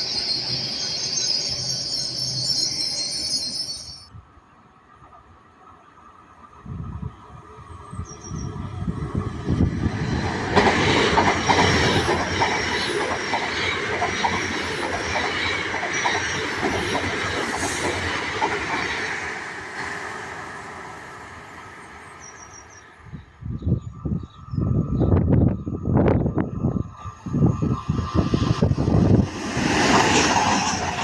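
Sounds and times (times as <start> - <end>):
train wheels clattering over rails: 9.8 - 20.7.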